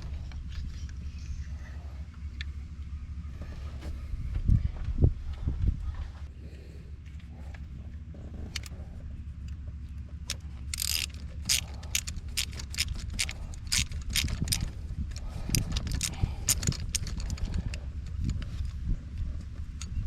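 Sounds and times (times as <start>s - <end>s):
steady low rumble: 0.0s - 20.0s
metal hand tools clicking: 10.3s - 18.8s.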